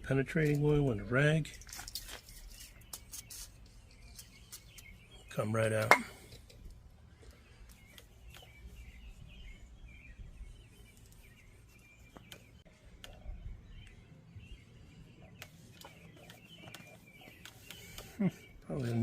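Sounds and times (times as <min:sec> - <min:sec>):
bird chirps: 0:01.9 - 0:19.0.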